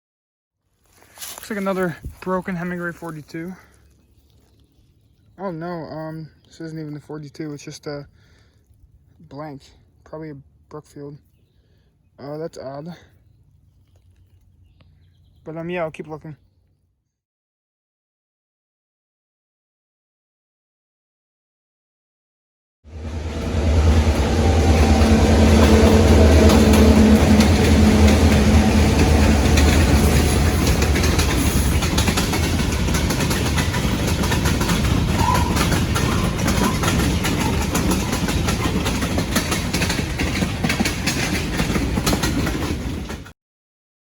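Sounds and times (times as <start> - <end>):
locomotive engine drone: 22.9 - 43.3
train cars clattering on track: 23.0 - 43.3.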